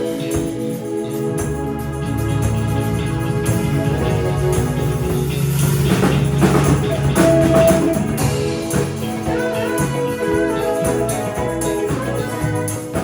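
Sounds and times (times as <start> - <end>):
live band playing instrumental: 0.0 - 13.0
percussion strikes: 0.0 - 13.0.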